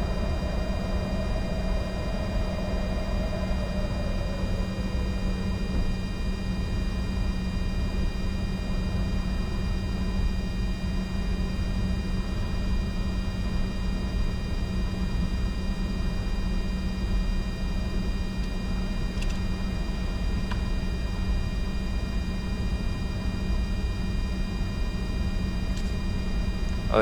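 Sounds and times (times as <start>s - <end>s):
high whining tones: 0.0s - 8.5s
jet engines running: 0.0s - 27.0s.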